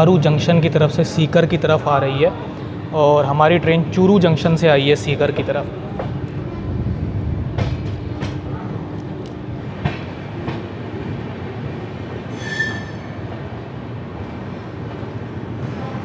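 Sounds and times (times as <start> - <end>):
train carriage rumbling: 0.0 - 16.0
brief high squeal: 12.3 - 13.2.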